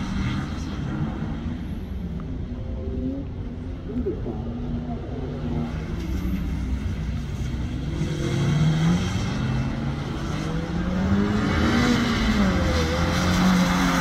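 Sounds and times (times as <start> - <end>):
car engine revving: 4.5 - 14.0.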